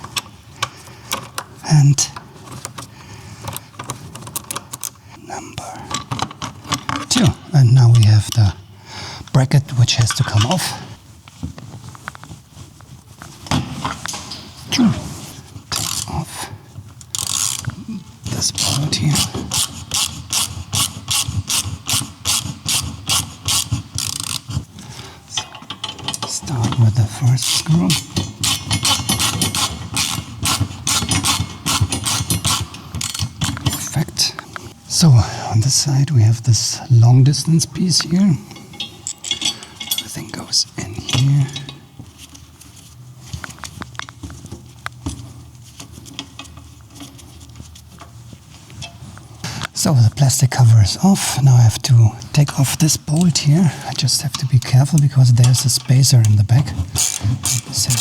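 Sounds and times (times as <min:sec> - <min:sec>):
ratchet wrench clicking: 0:15.8 - 0:16.1, 0:17.1 - 0:17.8, 0:18.5 - 0:24.6, 0:27.4 - 0:33.7, 0:56.9 - 0:58.0.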